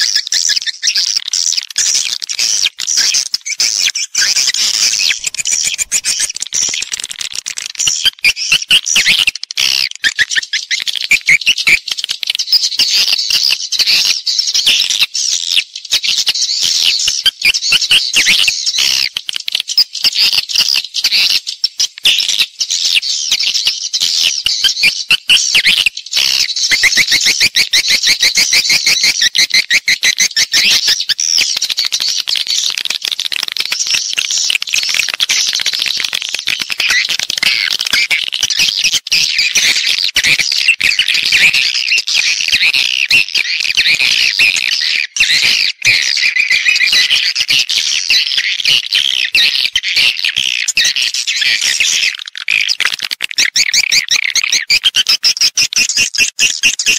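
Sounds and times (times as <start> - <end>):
swiftlets twittering and chirping: 0.0 - 13.8, 22.1 - 56.9.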